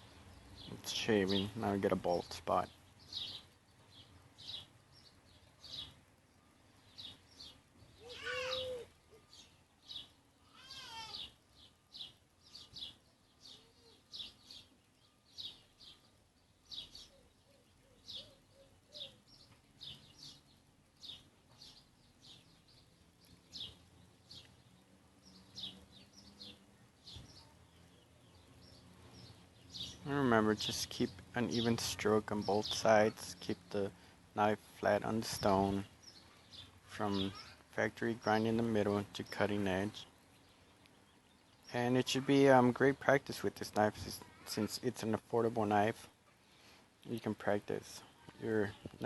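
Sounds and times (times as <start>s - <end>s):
longer louder bird calls: 2.1s - 34.2s.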